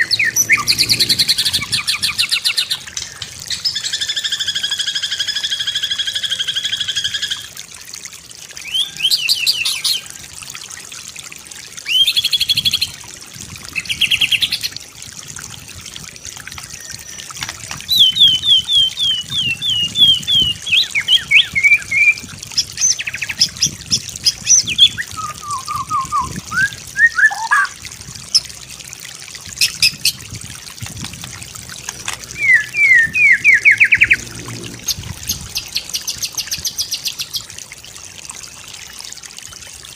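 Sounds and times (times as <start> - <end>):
bird singing varied phrases: 0.0 - 7.4, 8.6 - 10.0, 11.9 - 12.9, 17.9 - 27.8, 32.3 - 34.3.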